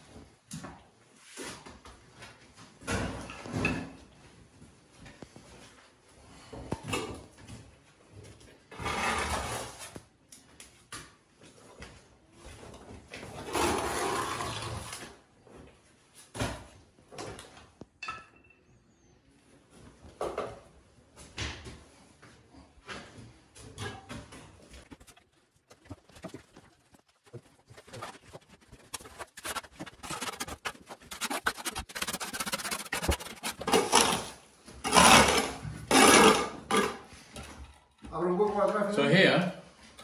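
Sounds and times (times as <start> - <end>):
trowel scraping wet cement: 13.4 - 15.0, 24.8 - 36.6.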